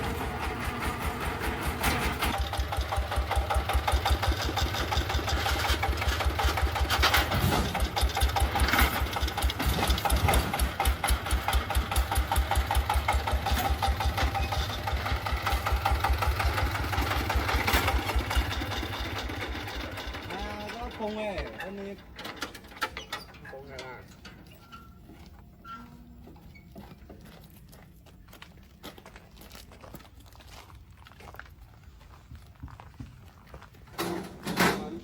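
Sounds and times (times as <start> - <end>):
engine running: 0.0 - 22.8.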